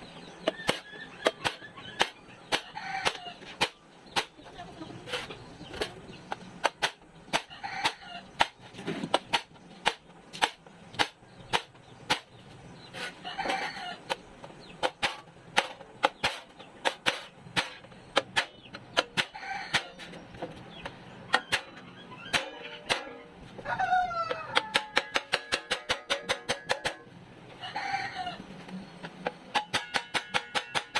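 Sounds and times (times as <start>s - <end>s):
rooster crowing: 7.5s - 8.2s, 23.6s - 25.0s, 27.6s - 28.4s
hammer strikes: 21.3s - 23.2s, 24.5s - 27.0s, 29.2s - 30.9s.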